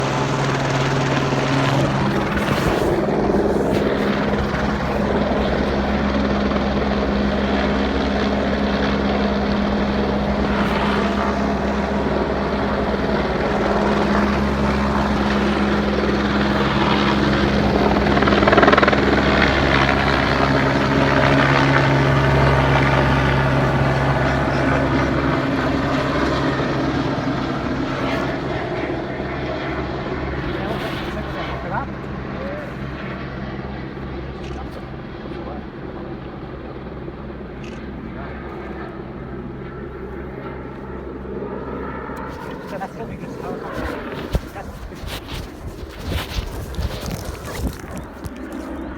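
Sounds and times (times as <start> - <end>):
helicopter drone: 0.0 - 48.9.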